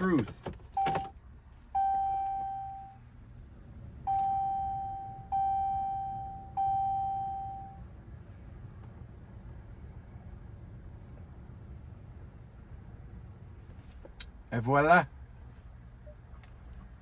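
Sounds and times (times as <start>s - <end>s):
dashboard warning chime dinging: 0.0s - 3.1s, 4.0s - 7.9s.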